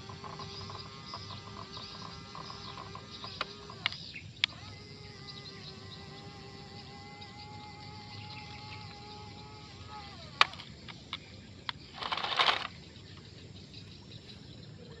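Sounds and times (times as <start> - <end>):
rattling noise: 0.0 - 4.7, 7.3 - 11.1, 11.9 - 12.8
toy electric motor whining: 0.0 - 11.2, 11.8 - 12.8.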